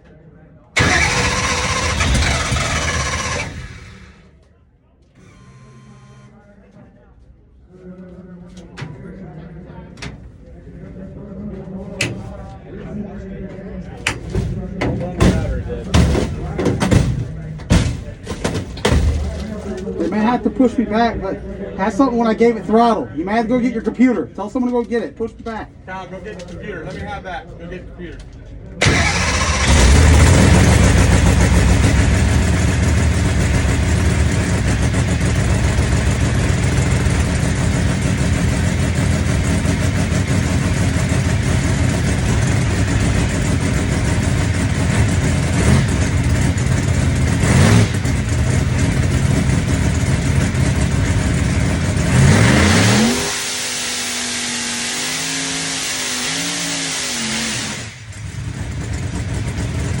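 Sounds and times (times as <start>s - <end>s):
race car engine idling loudly: 0.8s - 4.3s, 28.8s - 60.0s
engine throttle blips: 0.8s - 4.4s, 5.2s - 6.4s, 28.8s - 60.0s.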